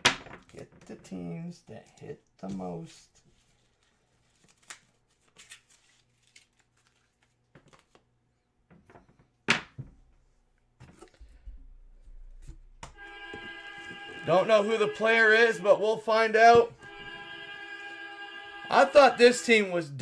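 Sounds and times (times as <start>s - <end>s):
plastic and cardboard rustling: 1.9s - 8.1s.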